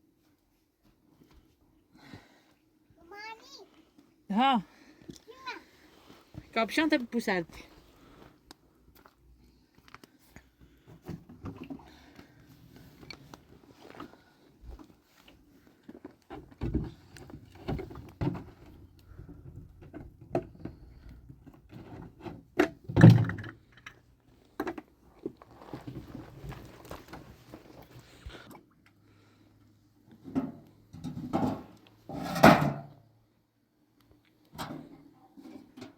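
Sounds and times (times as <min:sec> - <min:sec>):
rustling: 0:25.1 - 0:28.5.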